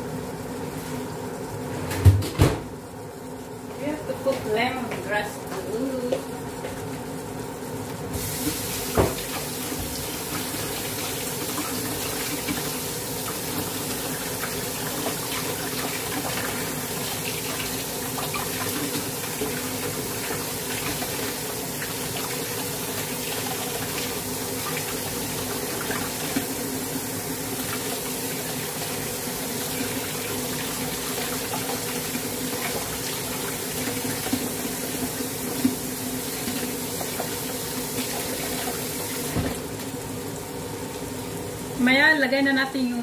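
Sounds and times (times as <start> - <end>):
garlic sizzling in oil: 8.0 - 39.4.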